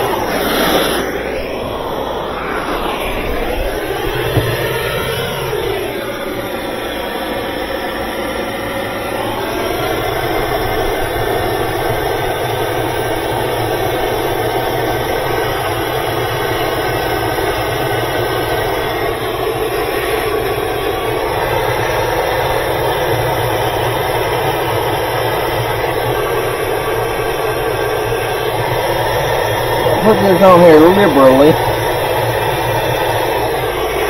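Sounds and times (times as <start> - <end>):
heat tool rushing: 0.0 - 7.1.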